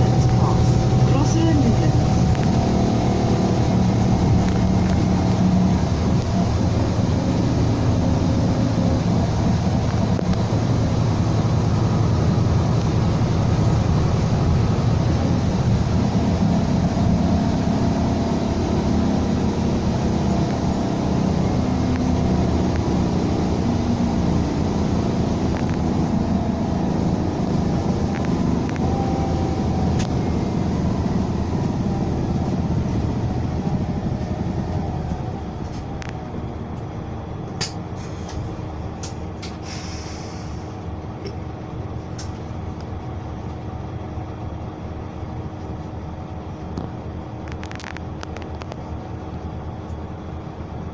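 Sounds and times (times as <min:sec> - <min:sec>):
bus diesel engine running: 0:00.0 - 0:50.9
road noise: 0:00.0 - 0:50.9
short air hiss: 0:39.6 - 0:40.7.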